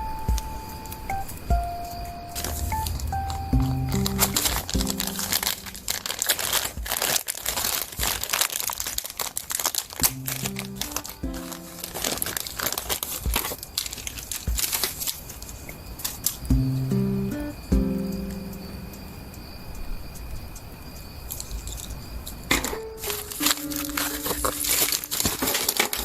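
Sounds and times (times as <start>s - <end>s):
background music: 0.0s - 7.1s, 10.0s - 12.8s, 16.5s - 19.3s, 22.8s - 26.0s
packaging crinkling: 2.4s - 16.4s, 22.5s - 26.0s.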